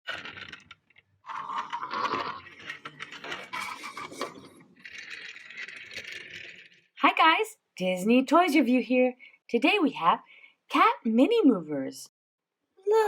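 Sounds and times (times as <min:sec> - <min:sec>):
mechanical clicking and rattling: 0:00.1 - 0:07.0.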